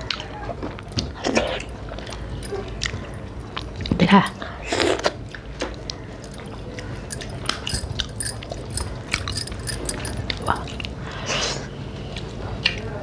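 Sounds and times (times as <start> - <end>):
chewing and mouth clicks: 5.3 - 11.0.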